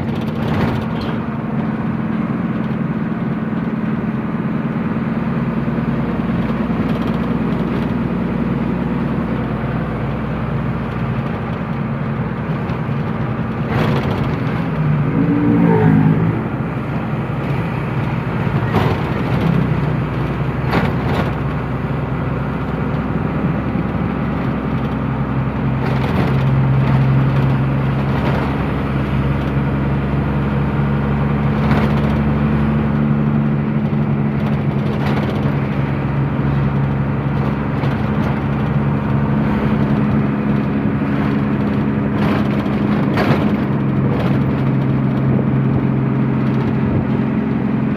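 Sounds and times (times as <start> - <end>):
truck engine running: 0.0 - 47.9
sharp knocks and rattles: 10.8 - 14.9, 33.8 - 36.6.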